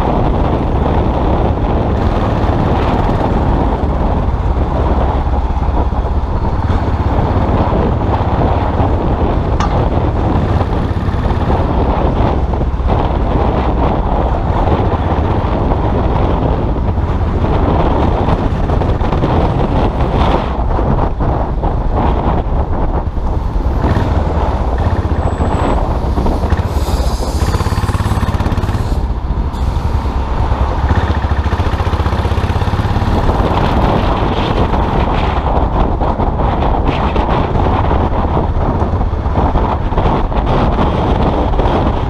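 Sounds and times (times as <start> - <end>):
motorcycle engine running: 0.0 - 20.0, 20.9 - 36.0
wind buffeting microphone: 0.0 - 42.0.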